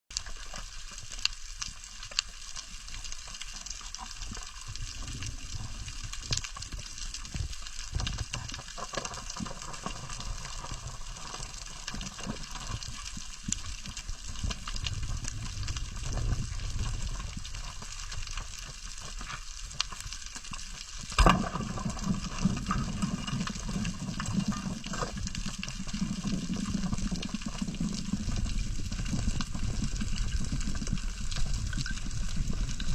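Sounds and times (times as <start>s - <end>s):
low rumble of moving water: 0.1s - 32.9s
loud sharp crack underwater: 21.0s - 25.4s.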